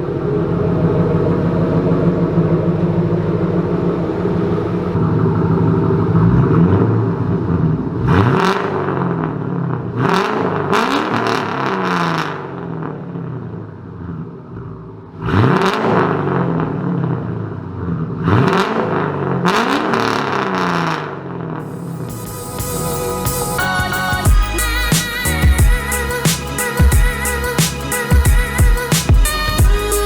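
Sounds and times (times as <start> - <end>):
car engine revving: 14.1 - 30.0
turbo hiss: 21.7 - 30.0.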